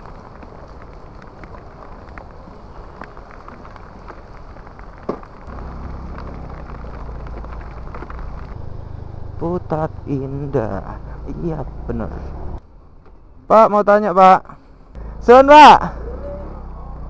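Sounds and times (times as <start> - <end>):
heavy rain on pavement: 0.0 - 8.6
motorcycle engine running: 5.3 - 12.6.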